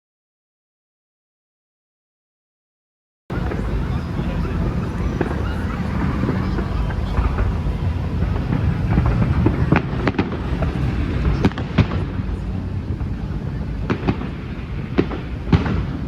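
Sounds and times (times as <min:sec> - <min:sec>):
fireworks bangs and cracks: 0:03.3 - 0:16.0
steady low rumble: 0:03.3 - 0:16.0.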